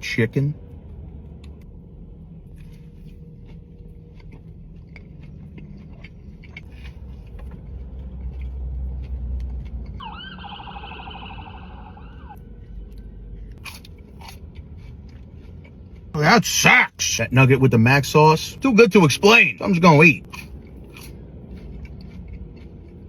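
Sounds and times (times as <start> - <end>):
low rumble: 0.0 - 16.2
warbling siren: 10.0 - 12.4.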